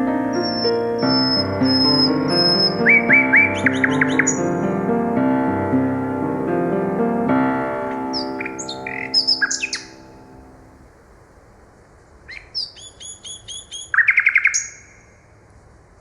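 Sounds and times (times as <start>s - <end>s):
nightingale singing: 0.0s - 10.6s, 12.3s - 15.0s
sustained piano chord: 0.0s - 10.8s.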